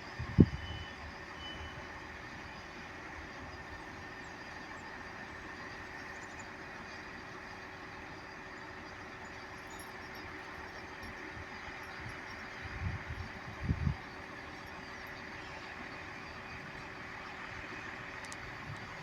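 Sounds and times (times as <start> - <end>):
faint train hum: 0.0 - 19.0.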